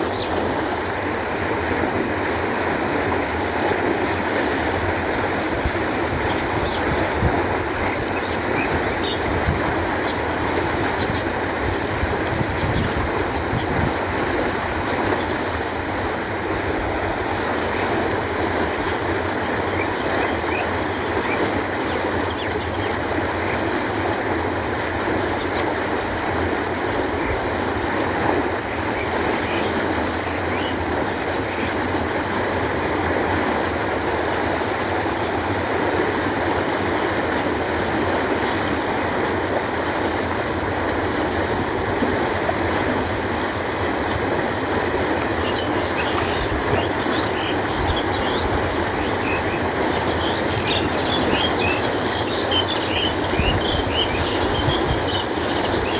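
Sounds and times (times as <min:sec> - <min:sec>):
canal water flowing: 0:00.0 - 0:55.9
faint bird chirps: 0:45.2 - 0:55.9.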